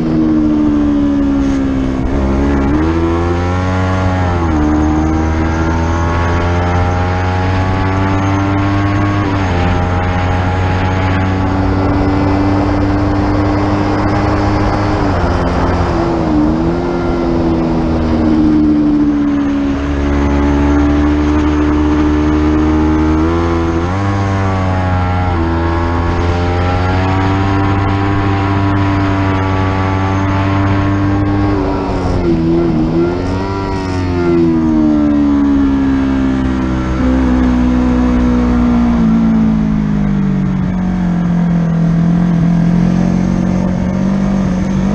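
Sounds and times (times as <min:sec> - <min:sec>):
racing motorcycle engine: 0:00.0 - 0:44.9
wind rush: 0:07.6 - 0:36.5.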